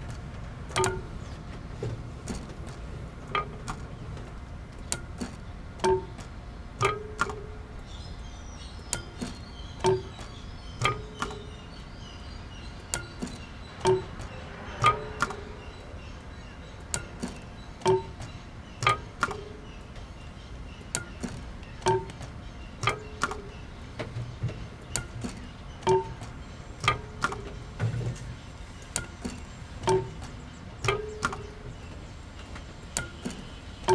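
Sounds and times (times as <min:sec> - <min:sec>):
sharp ringing struck knocks: 0:04.9 - 0:08.0, 0:08.8 - 0:12.0, 0:12.8 - 0:16.0, 0:16.8 - 0:19.8, 0:20.7 - 0:33.9.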